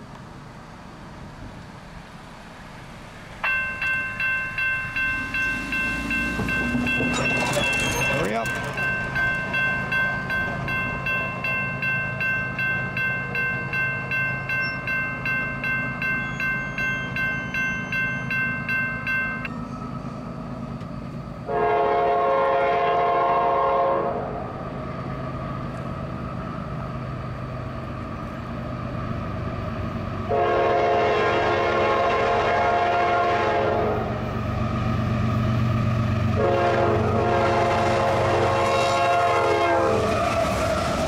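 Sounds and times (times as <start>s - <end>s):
freight train rumbling: 0.0s - 41.0s
railroad crossing bell ringing: 3.4s - 23.6s
locomotive air horn chord: 21.5s - 24.2s, 30.3s - 34.2s, 36.4s - 40.1s.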